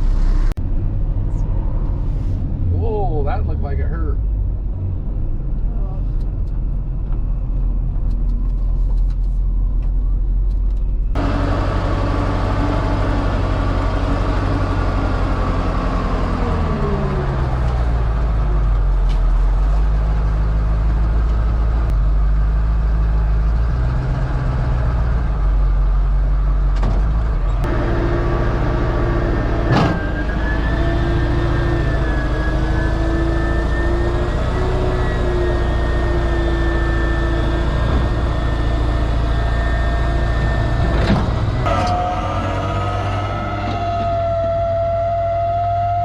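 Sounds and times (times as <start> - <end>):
road noise: 0.0 - 46.0
tow truck engine driving: 0.0 - 46.0.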